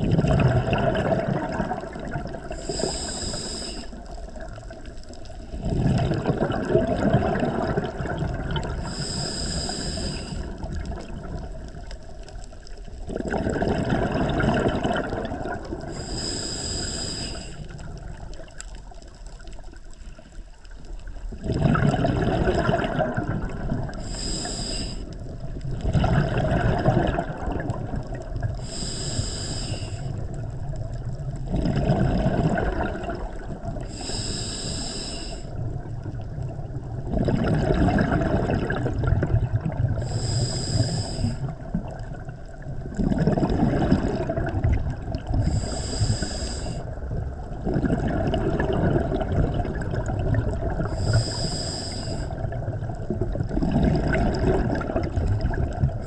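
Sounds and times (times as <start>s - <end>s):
exhaled bubbles rumbling: 0.0s - 56.0s
regulator inhale hiss: 2.5s - 5.2s, 8.8s - 10.7s, 15.8s - 17.9s, 23.9s - 25.3s, 28.5s - 30.3s, 33.8s - 35.7s, 40.0s - 42.0s, 45.3s - 47.0s, 50.8s - 52.5s.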